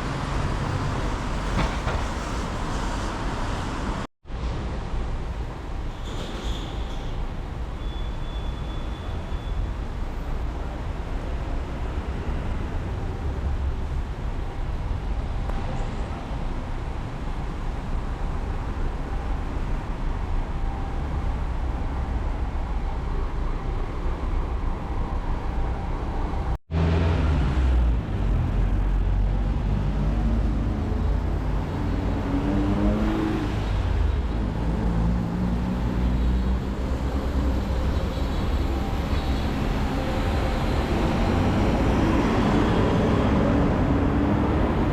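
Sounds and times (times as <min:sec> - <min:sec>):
cars passing: 0:26.0 - 0:44.9.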